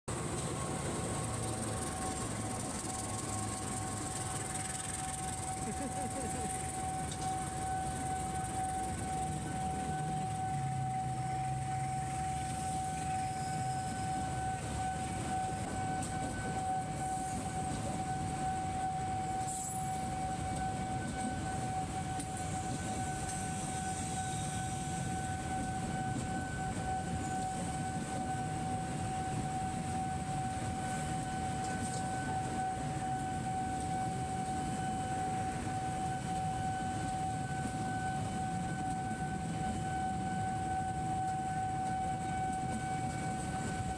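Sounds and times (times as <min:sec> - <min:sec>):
train rumbling past: 0:00.1 - 0:43.9
crossing alarm high tone: 0:00.2 - 0:43.9.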